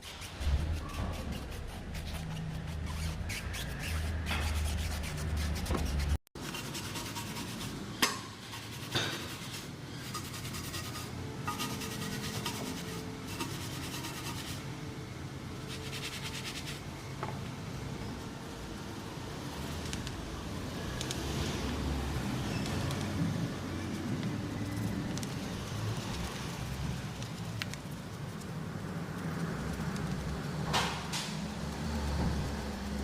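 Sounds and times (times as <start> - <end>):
brush scrubbing car surface: 0.0 - 7.8, 8.4 - 14.6.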